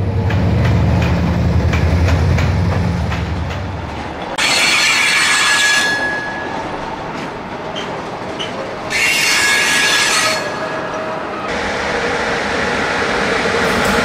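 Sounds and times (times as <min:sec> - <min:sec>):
diesel locomotive engine drone: 0:00.0 - 0:14.0
freight train rolling clatter: 0:00.0 - 0:14.0
wheels clicking over rail joints: 0:00.2 - 0:11.1
train wheels screeching: 0:04.4 - 0:14.0.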